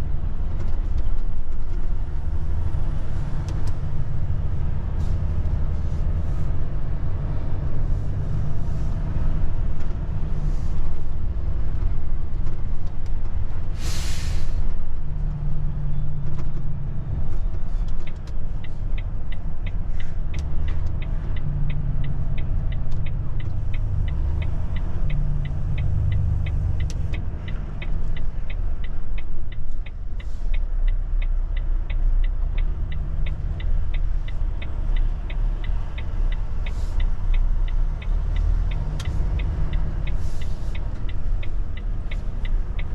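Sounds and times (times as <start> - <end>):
turn signal ticking: 0.0 - 13.8, 14.5 - 42.9
truck diesel engine rumbling: 0.0 - 42.9
air brake hiss: 13.7 - 14.6.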